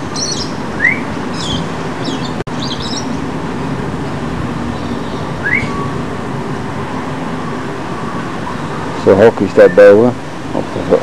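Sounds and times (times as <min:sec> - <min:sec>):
small birds chirping: 0:00.0 - 0:03.2, 0:04.7 - 0:06.0.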